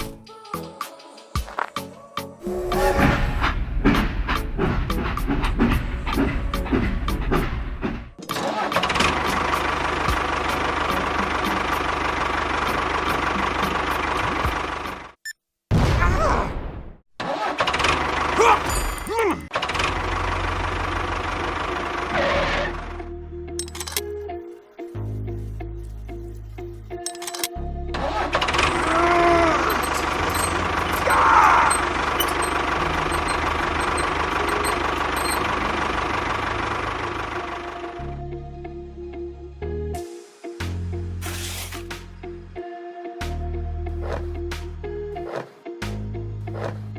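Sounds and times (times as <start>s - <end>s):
small machine rattling and knocking: 28.5s - 36.2s
motor running with high hum: 28.6s - 36.6s.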